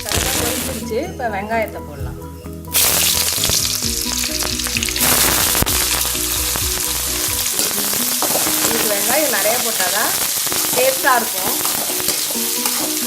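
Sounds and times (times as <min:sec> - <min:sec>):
onions sizzling in hot oil: 0:00.0 - 0:00.9, 0:02.7 - 0:13.0.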